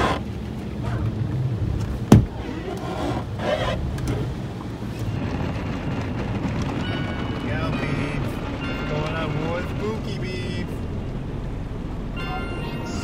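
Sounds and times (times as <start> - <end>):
vehicle rumble: 0.0 - 13.0
sharp thump: 2.1 - 2.3.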